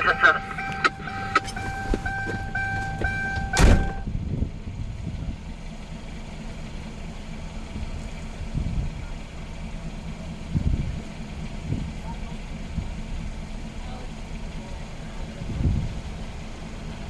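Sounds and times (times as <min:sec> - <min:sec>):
electronic beeping chime: 0:00.0 - 0:04.0
vehicle engine idling: 0:00.0 - 0:17.0
loud thump: 0:01.5 - 0:04.1.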